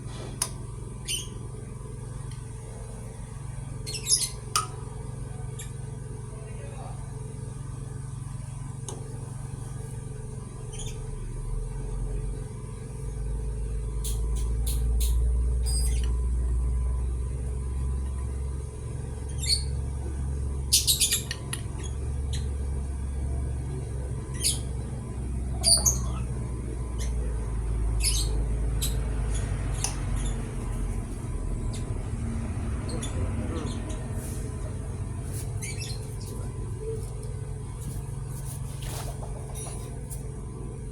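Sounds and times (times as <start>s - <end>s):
metallic clicks and squeaks: 14.0s - 16.2s
steady low rumble: 26.4s - 40.9s.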